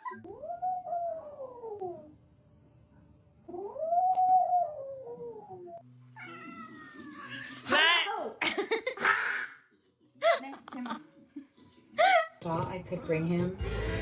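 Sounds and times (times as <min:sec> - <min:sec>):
cat yowling: 0:06.2 - 0:07.7.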